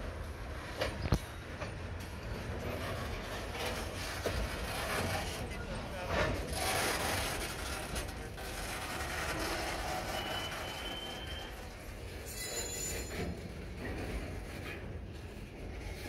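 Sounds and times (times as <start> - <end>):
rail cars rumbling on track: 0.0 - 16.0
thin wheel squeal: 8.4 - 13.4.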